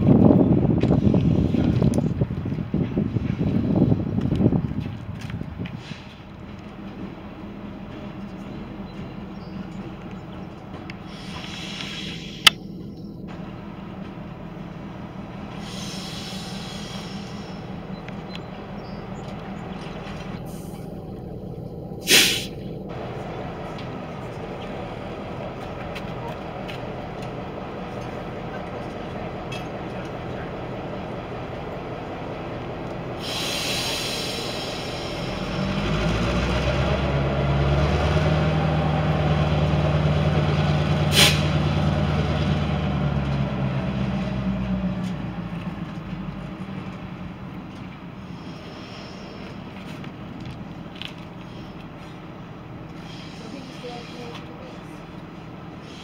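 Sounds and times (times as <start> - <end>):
train humming: 0.0 - 56.0
loud hiss: 11.0 - 12.5, 15.5 - 17.7, 22.0 - 22.6, 33.2 - 35.6, 41.1 - 41.5
hissing: 22.0 - 22.6.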